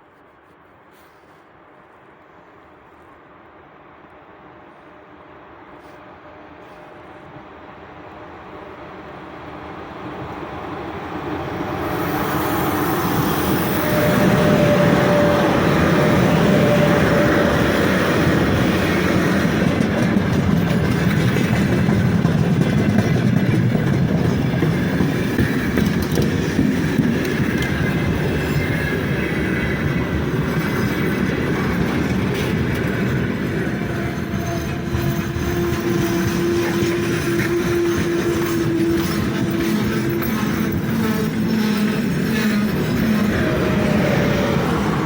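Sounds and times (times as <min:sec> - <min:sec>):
freight train rail rumble: 0:00.0 - 0:45.0
wheels clacking over rail joints: 0:13.0 - 0:45.0
thin brake squeal: 0:34.0 - 0:42.6.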